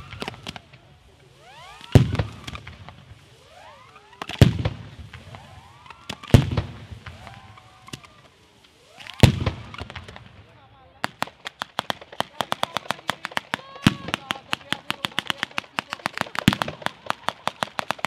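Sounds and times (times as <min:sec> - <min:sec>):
rising firework whistles: 0:00.0 - 0:10.3
firework bangs: 0:00.0 - 0:18.0
firework crackling: 0:00.0 - 0:18.0.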